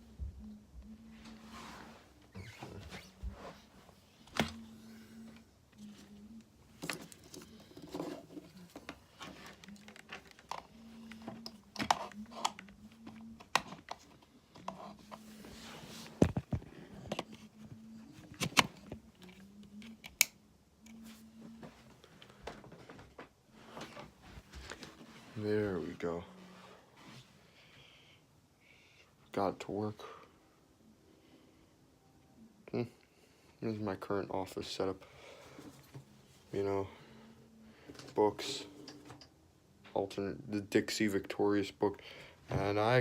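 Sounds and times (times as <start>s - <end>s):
faint low hum: 0.0s - 43.0s
rustling and handling noises: 0.4s - 20.2s, 20.8s - 27.4s.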